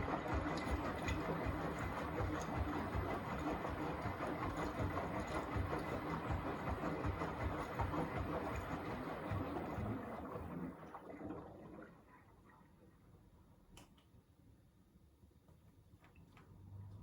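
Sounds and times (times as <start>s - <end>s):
washing machine drum thuds: 0.0s - 9.9s
washing machine mechanical noise: 0.0s - 14.6s.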